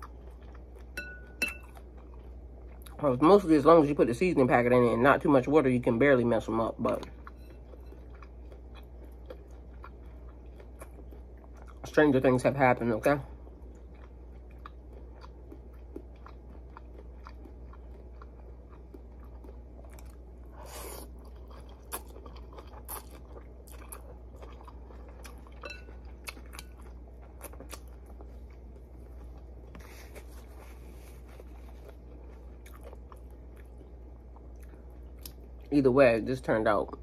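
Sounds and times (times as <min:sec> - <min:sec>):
chewing noodles: 0:00.0 - 0:01.0, 0:07.0 - 0:11.8, 0:13.4 - 0:35.7
steady low hum: 0:00.0 - 0:37.0.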